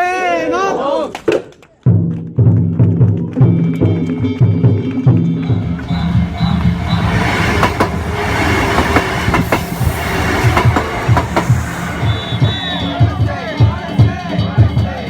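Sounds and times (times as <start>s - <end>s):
crowd noise: 5.2s - 15.0s
drum beating fast rhythm: 5.2s - 15.0s.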